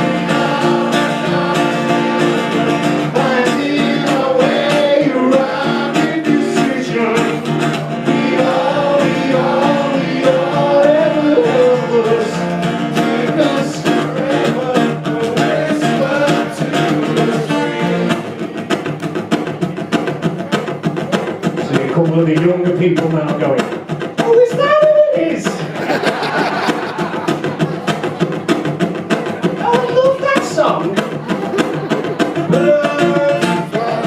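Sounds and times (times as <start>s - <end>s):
person singing: 0.0s - 18.8s, 31.2s - 34.0s
acoustic guitar strumming: 0.0s - 34.0s.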